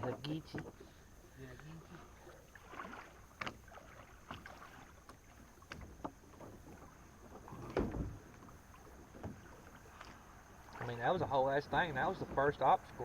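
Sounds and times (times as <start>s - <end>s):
paddle splashing in water: 0.0s - 13.0s
deep thump: 7.6s - 8.2s.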